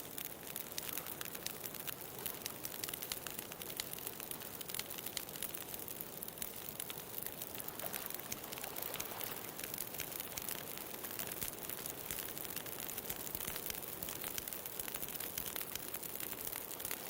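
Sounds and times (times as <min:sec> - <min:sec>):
wood bonfire crackling: 0:00.0 - 0:17.0
ocean surf hiss: 0:07.6 - 0:10.1.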